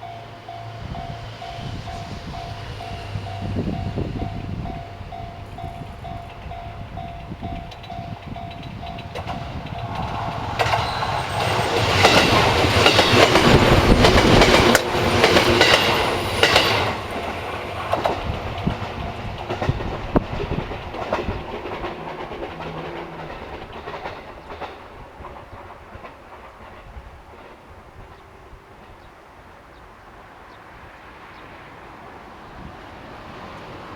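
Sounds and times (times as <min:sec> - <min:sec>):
train passing: 0:00.0 - 0:33.9
wheels clicking over rail joints: 0:01.9 - 0:29.2.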